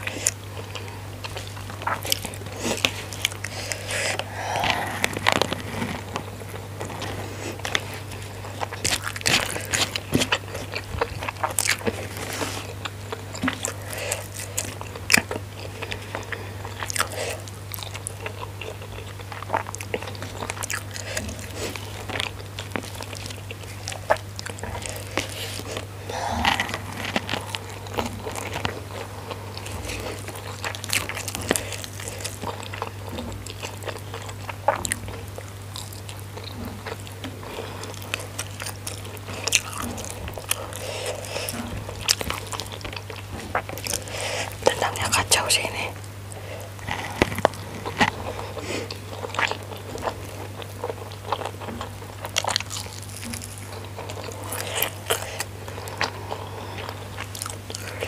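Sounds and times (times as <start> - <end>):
person chewing food: 0.0 - 58.0
low hum: 3.6 - 7.8.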